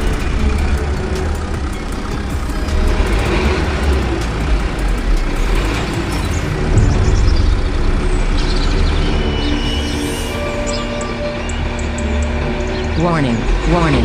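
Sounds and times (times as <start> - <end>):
large vehicle engine rumbling: 0.0 - 14.0.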